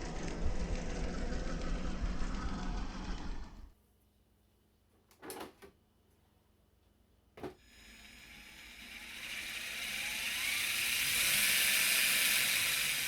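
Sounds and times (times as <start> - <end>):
toy car motor and drivetrain: 7.7 - 13.0.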